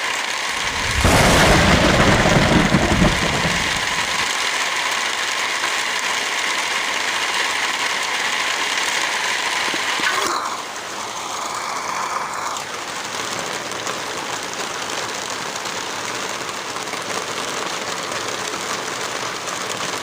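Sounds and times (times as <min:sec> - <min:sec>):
heavy rain hissing: 0:00.5 - 0:04.3
deep low rumble: 0:00.6 - 0:04.2.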